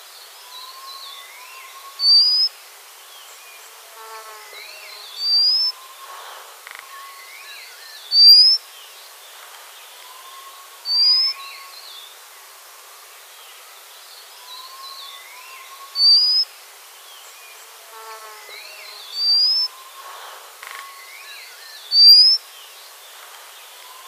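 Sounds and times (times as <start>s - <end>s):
bird whistled rising calls: 5.2s - 6.1s, 10.1s - 11.6s, 19.2s - 20.0s, 20.8s - 22.4s.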